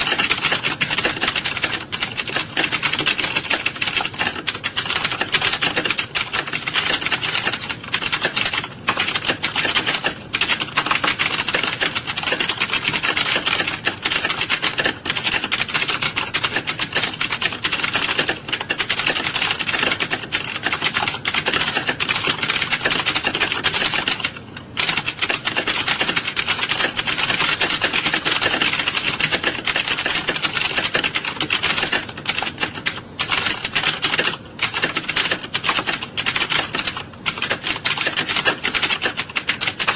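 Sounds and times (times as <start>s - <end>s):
many keyboards clattering: 0.0s - 39.9s.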